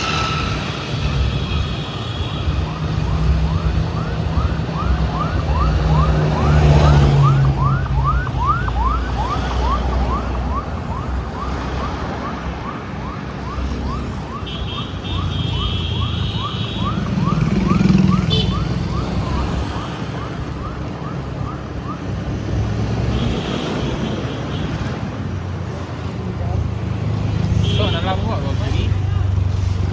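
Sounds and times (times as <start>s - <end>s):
road and wind noise: 0.0s - 29.9s
siren yelping: 2.4s - 22.2s.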